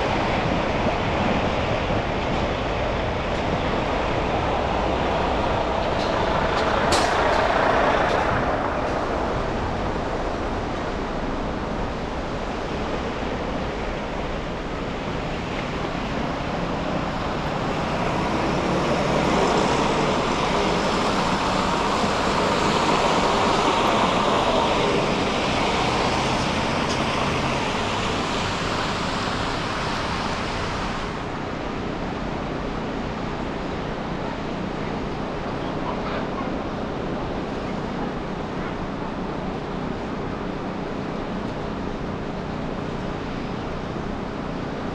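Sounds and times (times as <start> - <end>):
passing vehicles: 0.0 - 44.9
tyres hissing on wet streets: 0.0 - 44.9.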